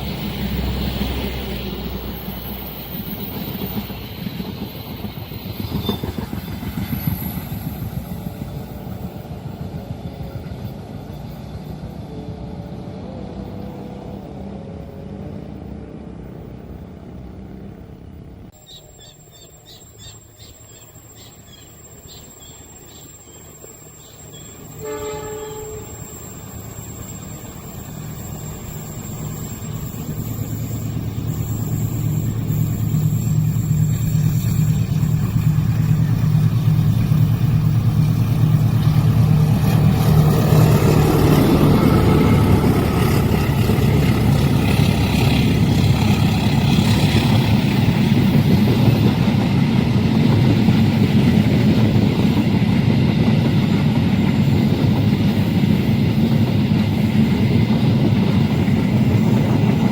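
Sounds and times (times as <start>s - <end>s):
diesel train rumble: 0.0s - 59.9s
train horn blast: 24.7s - 26.3s.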